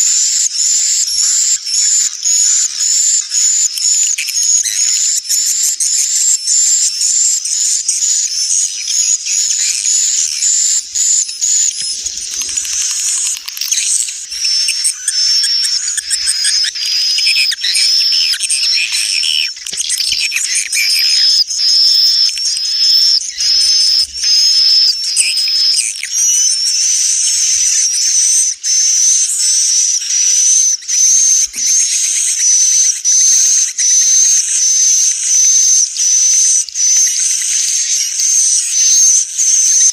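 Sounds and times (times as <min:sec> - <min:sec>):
swiftlets twittering: 0:08.5 - 0:26.7.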